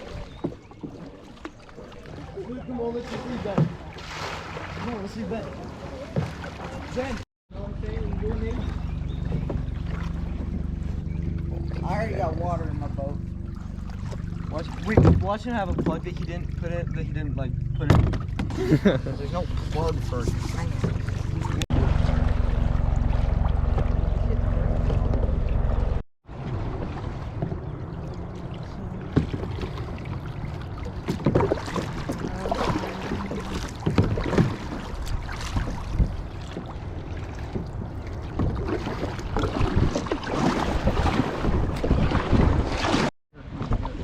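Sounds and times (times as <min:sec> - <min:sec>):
kayak paddles splashing: 0:00.0 - 0:44.0
water sloshing: 0:00.0 - 0:44.0
wind rumbling on microphone: 0:19.6 - 0:44.0.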